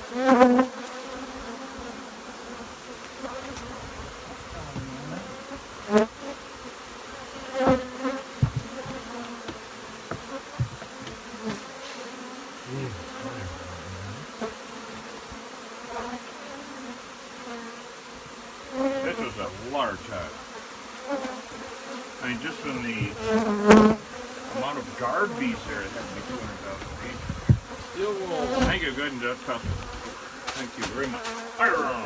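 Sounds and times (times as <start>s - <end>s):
bees buzzing in a swarm: 0.0s - 32.0s
sharp knocks: 8.4s - 11.6s.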